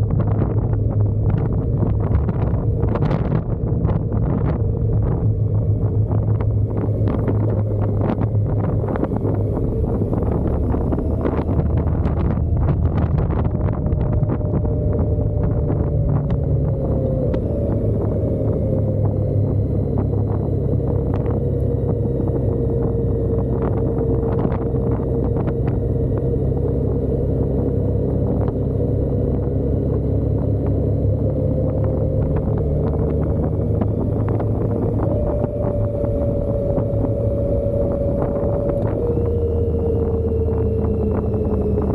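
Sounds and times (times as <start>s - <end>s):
motorcycle engine running: 0.0s - 41.9s
wind buffeting microphone: 0.0s - 41.9s.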